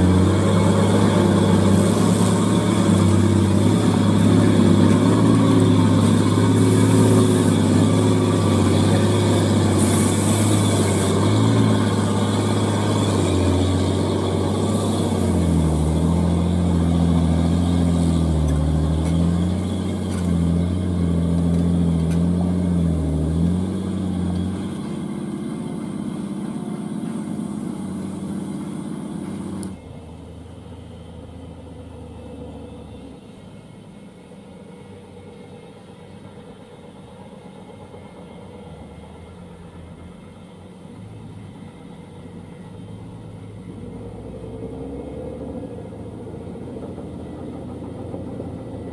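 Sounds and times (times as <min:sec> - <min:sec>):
diesel truck engine running hard: 0:00.0 - 0:48.9.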